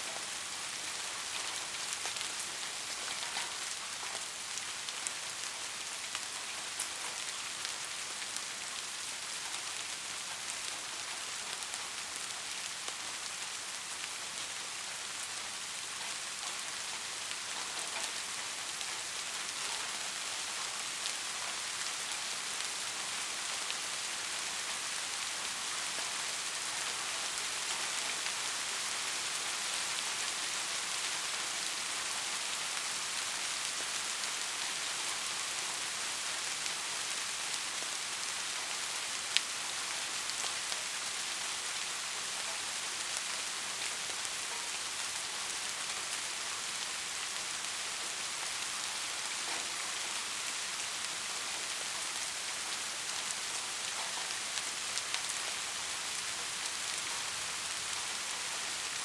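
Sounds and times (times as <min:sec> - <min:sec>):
rain pattering on a roof: 0:00.0 - 0:59.0.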